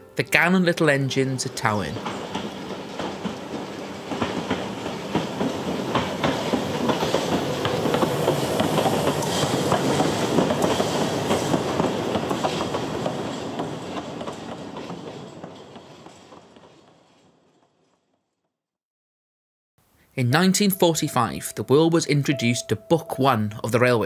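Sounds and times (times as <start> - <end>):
train wheels rattling over rail joints: 1.2 - 18.0.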